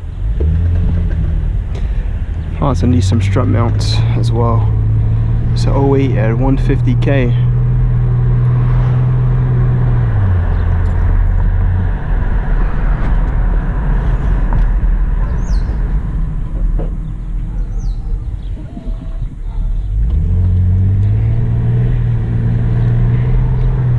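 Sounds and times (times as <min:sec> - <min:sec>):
car engine tone: 0:00.0 - 0:23.9
road noise inside car: 0:00.0 - 0:23.9.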